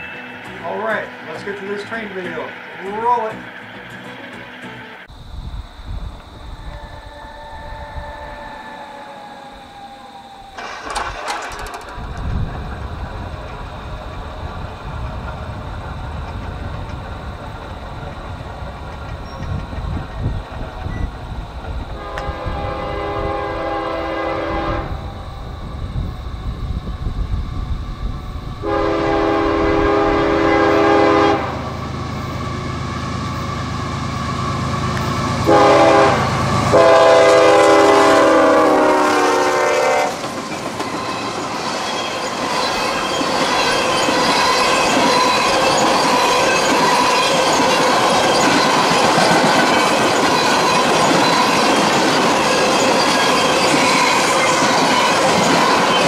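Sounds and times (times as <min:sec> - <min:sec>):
locomotive engine rumble: 0:00.0 - 0:56.0
train horn blasts: 0:06.5 - 0:09.7, 0:21.9 - 0:25.5, 0:28.6 - 0:40.2
tank cars rumbling and clattering: 0:10.6 - 0:21.0.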